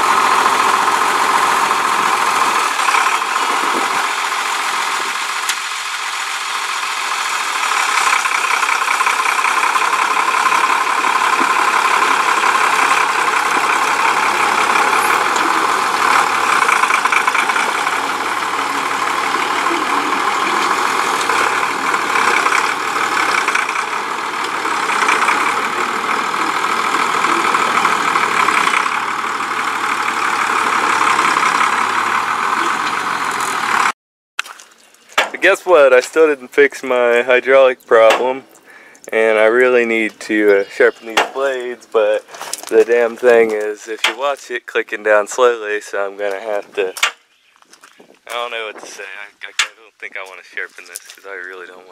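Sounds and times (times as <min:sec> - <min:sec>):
tractor engine running: 0:00.0 - 0:34.0, 0:35.0 - 0:51.9.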